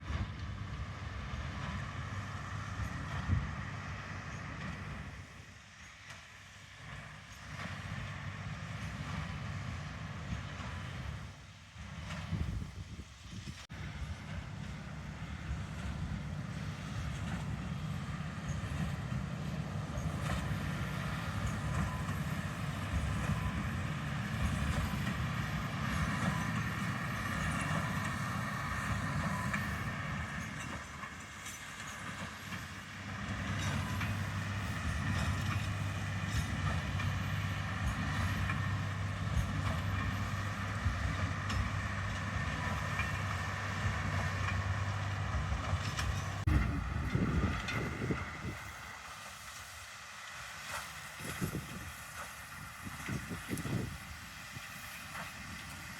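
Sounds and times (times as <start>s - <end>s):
low engine drone: 32.9s - 49.3s.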